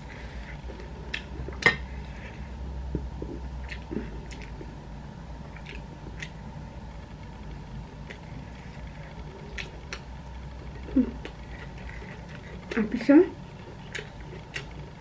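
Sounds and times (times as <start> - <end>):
low steady hum: 0.0 - 15.0
chewing with mouth clicks: 0.4 - 2.4, 3.2 - 4.7, 5.5 - 6.4, 7.4 - 15.0.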